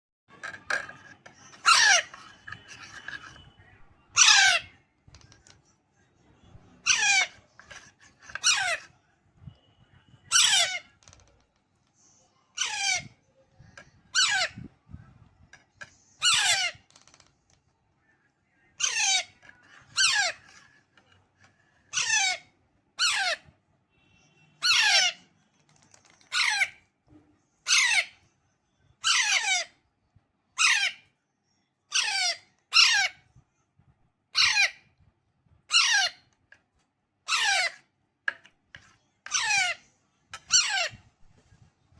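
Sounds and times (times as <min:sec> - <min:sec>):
parakeet chick squawking: 0:01.4 - 0:03.2, 0:04.1 - 0:04.8, 0:06.8 - 0:07.5, 0:08.3 - 0:08.8, 0:10.2 - 0:11.0, 0:12.6 - 0:13.2, 0:14.1 - 0:14.7, 0:16.2 - 0:16.9, 0:18.8 - 0:20.5, 0:21.9 - 0:23.4, 0:24.6 - 0:25.3, 0:27.6 - 0:28.2, 0:29.0 - 0:29.8, 0:30.6 - 0:31.0, 0:31.9 - 0:33.2, 0:34.3 - 0:34.8, 0:35.7 - 0:36.3, 0:37.2 - 0:37.8, 0:39.3 - 0:39.8, 0:40.4 - 0:41.0.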